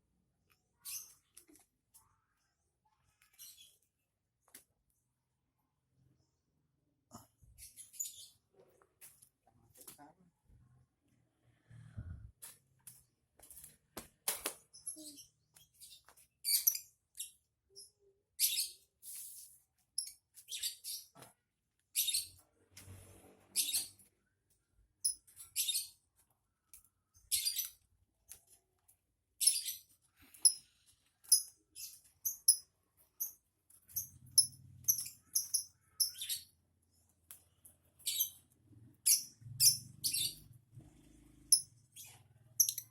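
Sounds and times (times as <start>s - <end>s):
bird chirping: 29.4s - 37.1s, 37.9s - 42.9s.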